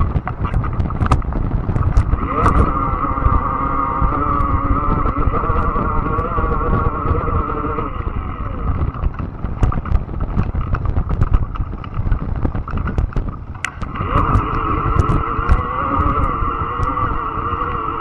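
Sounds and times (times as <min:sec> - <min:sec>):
sharp clicks and rattles: 0:00.0 - 0:18.0
tyres and wind rumble: 0:00.0 - 0:18.0
electric motor whine: 0:02.0 - 0:09.1, 0:13.7 - 0:18.0.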